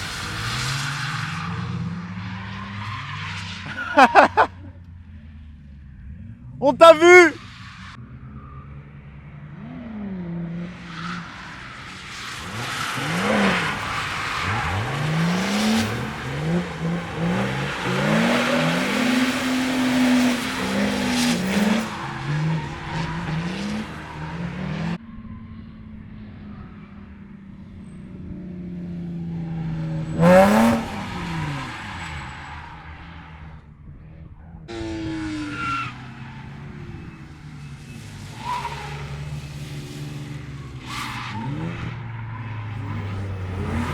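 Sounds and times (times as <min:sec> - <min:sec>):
car engine revving: 0:00.0 - 0:25.0, 0:28.3 - 0:43.9
car passing by: 0:29.7 - 0:32.9, 0:34.7 - 0:43.9
tyres squealing: 0:42.3 - 0:43.9.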